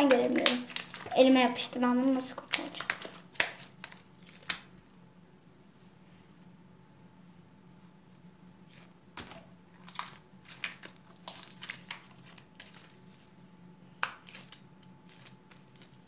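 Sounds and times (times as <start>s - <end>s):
slime crackling and popping: 0.0s - 4.8s, 8.7s - 13.1s, 14.0s - 16.0s.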